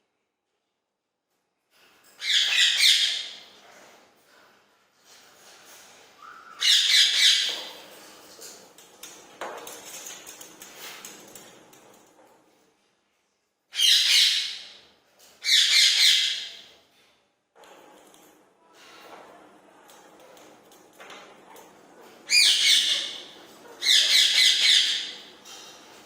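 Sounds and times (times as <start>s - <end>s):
parakeet screeching: 2.2s - 3.4s, 6.2s - 7.5s, 13.8s - 14.6s.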